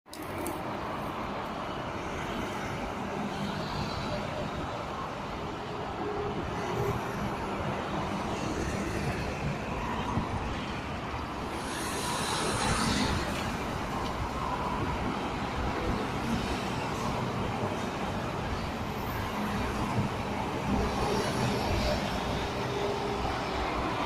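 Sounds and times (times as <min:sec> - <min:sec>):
motorway traffic: 0:00.1 - 0:24.0.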